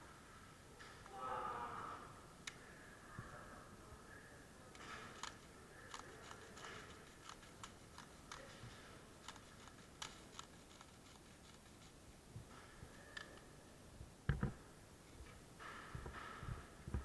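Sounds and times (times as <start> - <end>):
faint sharp clicks and ticks: 4.7 - 12.0.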